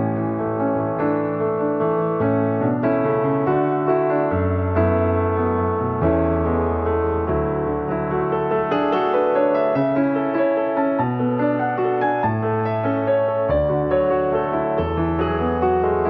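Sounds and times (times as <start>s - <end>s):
gentle piano piece: 0.0s - 16.0s.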